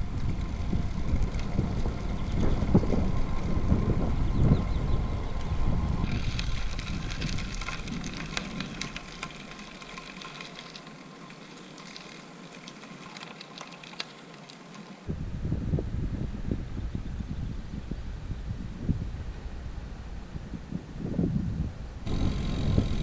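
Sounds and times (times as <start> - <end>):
wind buffeting microphone: 0.0 - 10.3, 15.1 - 23.0
bicycle tyres crackling on gravel: 0.0 - 15.2, 22.0 - 23.0.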